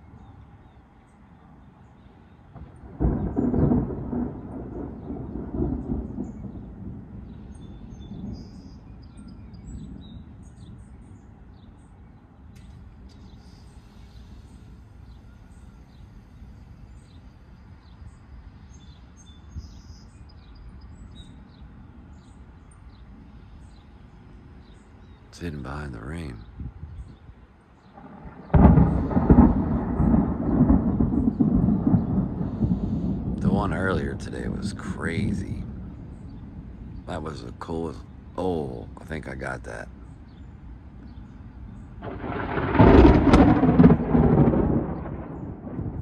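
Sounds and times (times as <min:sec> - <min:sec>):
birds chirping: 0:00.0 - 0:46.0
thunder crack and rumble: 0:02.5 - 0:08.6, 0:09.2 - 0:10.8, 0:27.9 - 0:38.0, 0:42.0 - 0:46.0.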